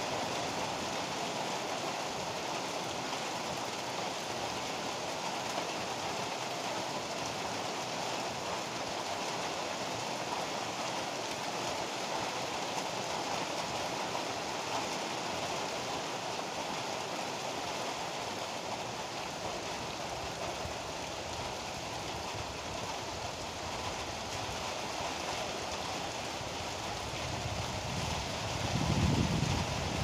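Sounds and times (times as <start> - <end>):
heavy rain pouring: 0.0 - 30.0
low rumble of thunder: 27.0 - 30.0.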